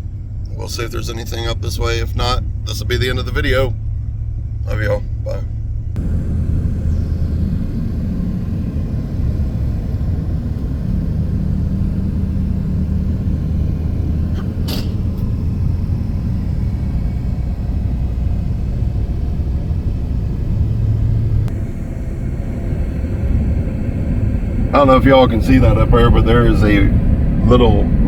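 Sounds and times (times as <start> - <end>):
vehicle engine hum and road noise: 0.0 - 28.0.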